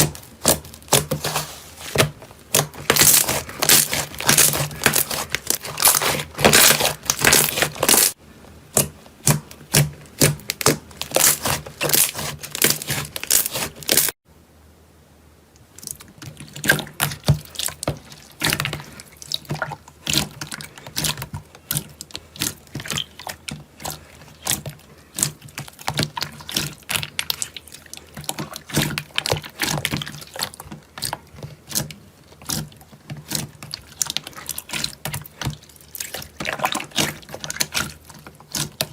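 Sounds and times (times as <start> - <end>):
slime squishing and popping: 0.0 - 14.1.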